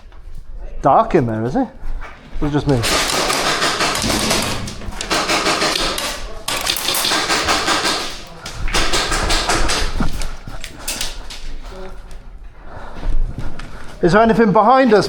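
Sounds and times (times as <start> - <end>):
airsoft gunfire clatter: 2.7 - 11.4.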